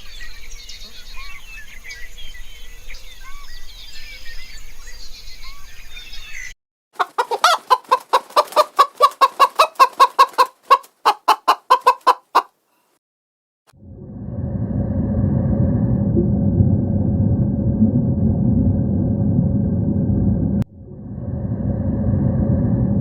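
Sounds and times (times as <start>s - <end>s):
small birds chirping: 0.0s - 12.4s
animal rapid repeated calls: 7.0s - 12.5s.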